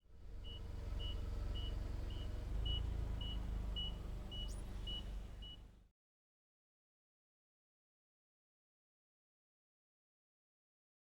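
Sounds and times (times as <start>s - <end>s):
low engine rumble: 0.1s - 5.8s.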